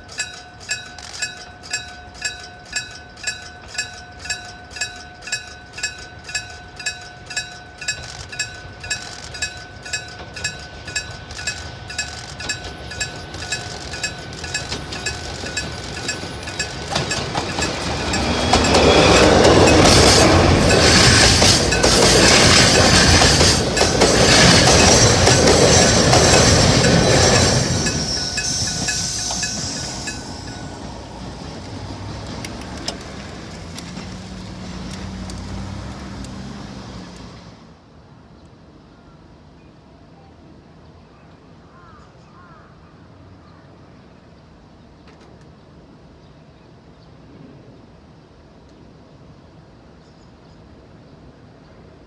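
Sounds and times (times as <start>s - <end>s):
level crossing bell ringing: 0.0s - 32.1s
freight train passing: 0.0s - 38.0s.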